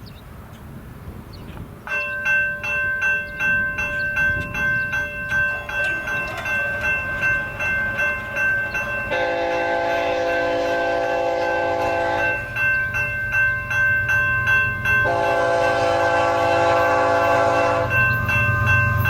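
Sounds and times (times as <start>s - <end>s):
railroad crossing bell ringing: 1.9s - 19.0s
locomotive horn: 9.1s - 12.5s, 15.0s - 18.0s.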